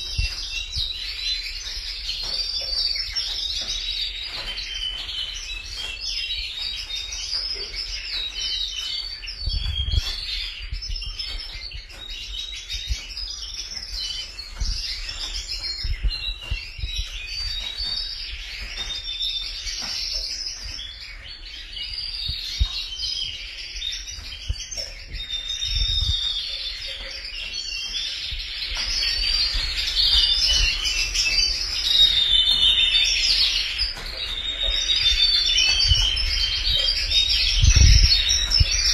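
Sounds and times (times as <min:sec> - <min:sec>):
canaries singing trills: 0:00.0 - 0:38.9.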